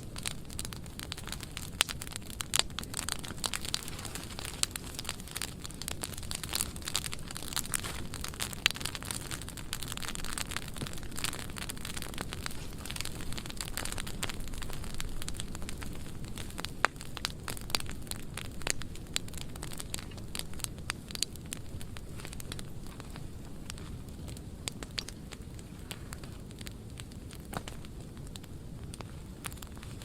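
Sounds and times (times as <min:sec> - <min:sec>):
low fire rumble: 0:00.0 - 0:30.0
wood fire crackling and popping: 0:00.0 - 0:30.0.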